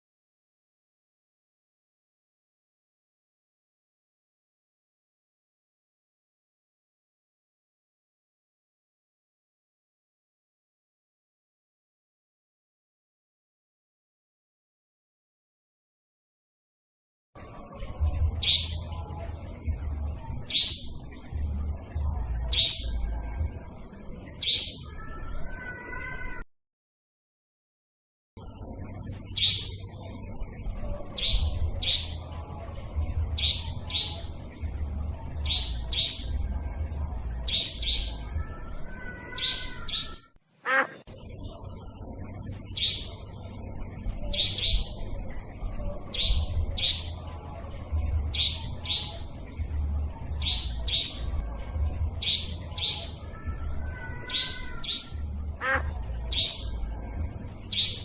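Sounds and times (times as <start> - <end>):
nightjar calls: 18.4 - 18.9, 20.5 - 21.1, 22.5 - 23.0, 24.4 - 26.1, 29.4 - 29.9, 31.2 - 32.3, 33.4 - 34.4, 35.4 - 36.4, 37.4 - 41.0, 42.7 - 43.3, 44.4 - 45.0, 46.1 - 47.2, 48.3 - 49.3, 50.4 - 51.4, 52.2 - 56.8, 57.7 - 58.0.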